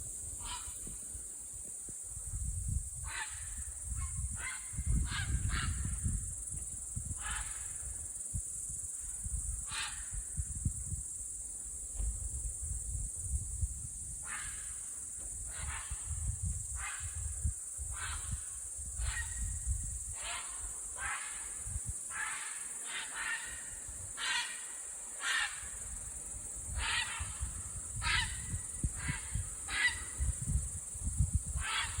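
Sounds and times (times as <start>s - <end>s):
cranes trumpeting calls: 0.4s - 0.9s, 3.0s - 6.1s, 7.2s - 7.8s, 9.7s - 10.2s, 14.2s - 14.9s, 17.9s - 26.0s, 26.7s - 30.3s, 31.6s - 32.0s.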